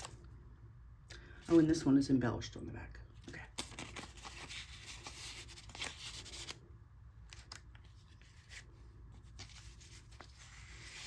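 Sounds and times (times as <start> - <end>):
paper rustling: 3.4 - 6.6, 7.3 - 11.0.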